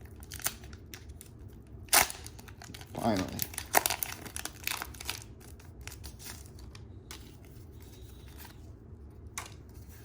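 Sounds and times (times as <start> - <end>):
foil wrapper crinkling: 1.9 - 6.8.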